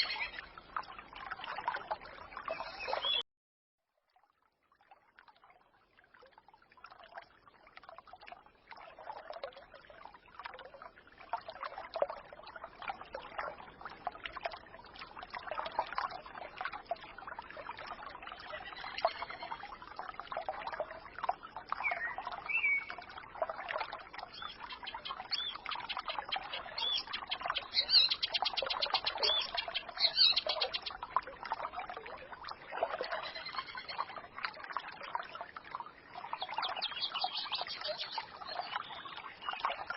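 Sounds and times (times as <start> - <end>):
stream gurgling and trickling: 0.0 - 39.9
songbirds chirping: 2.4 - 3.2, 24.2 - 31.0, 36.2 - 39.9.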